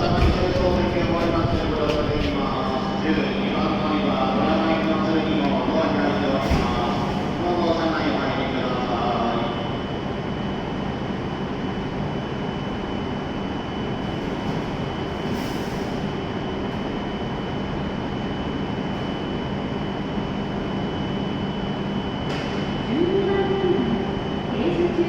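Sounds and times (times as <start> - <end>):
train equipment humming: 0.0 - 15.3.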